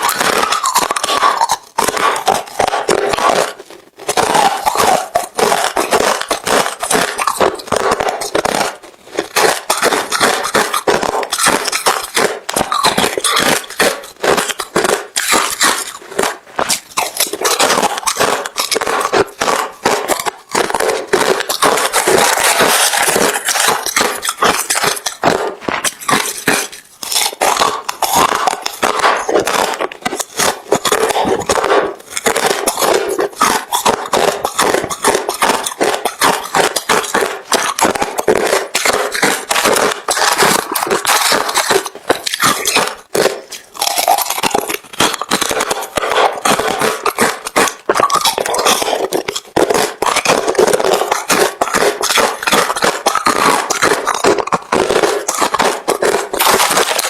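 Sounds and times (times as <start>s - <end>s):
crunching ice being chewed: 0.0s - 57.0s.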